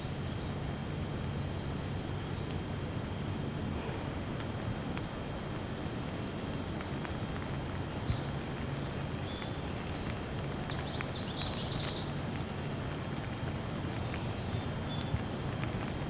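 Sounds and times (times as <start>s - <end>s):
steady rain: 2.1s - 16.0s
birds chirping: 7.4s - 12.3s.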